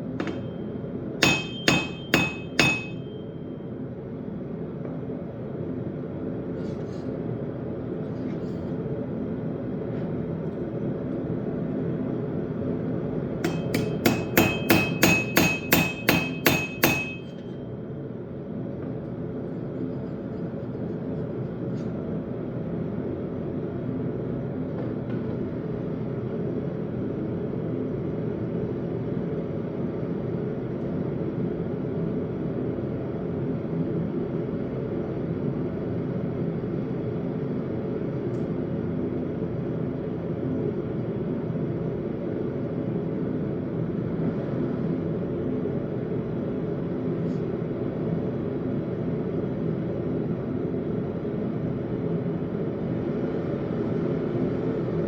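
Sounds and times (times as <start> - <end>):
hammer striking steel on anvil: 0.1 - 3.5, 13.4 - 17.6.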